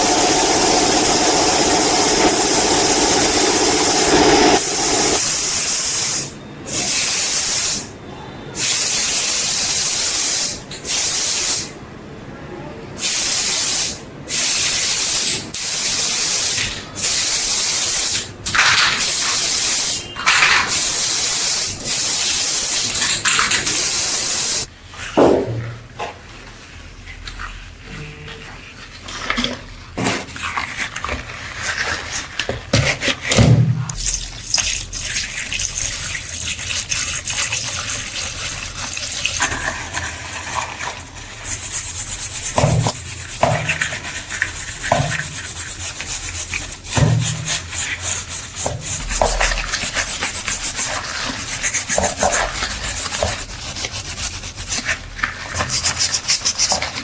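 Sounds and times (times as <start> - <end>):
sanding on metal: 41.4 - 57.0.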